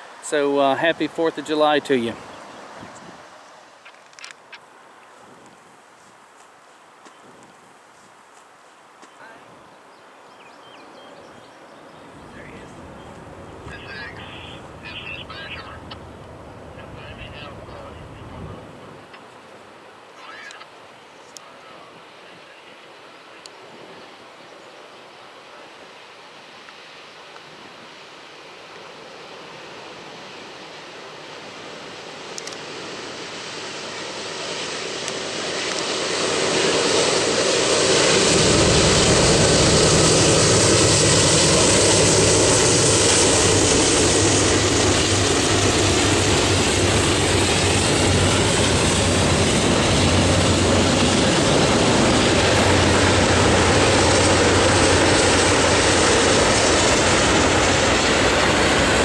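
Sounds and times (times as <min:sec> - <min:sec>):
diesel locomotive engines: 0:12.2 - 0:18.8, 0:33.4 - 0:59.0.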